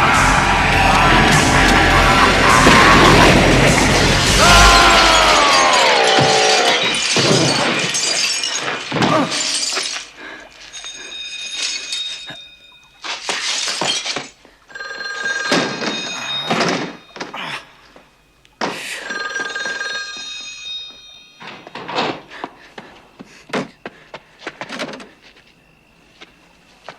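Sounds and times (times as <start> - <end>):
heavy crashes and impacts: 0.0 - 9.7.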